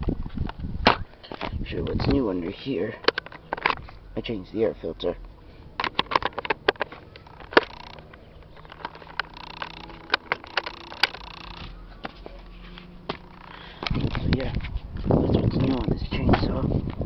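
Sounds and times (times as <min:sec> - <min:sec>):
small parts clicking and knocking: 0:05.8 - 0:12.2.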